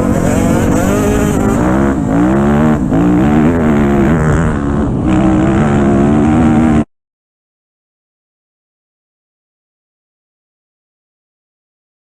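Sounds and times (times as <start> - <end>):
dirt bike engine revving: 0.0 - 6.9.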